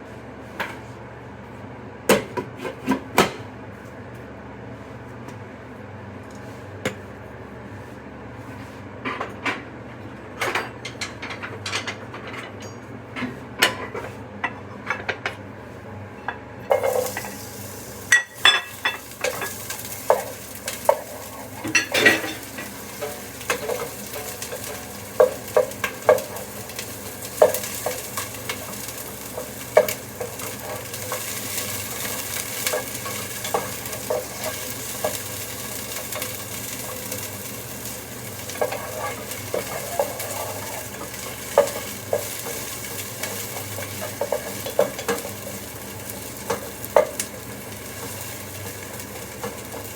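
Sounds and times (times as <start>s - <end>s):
food sizzling in a pan: 16.7s - 49.9s.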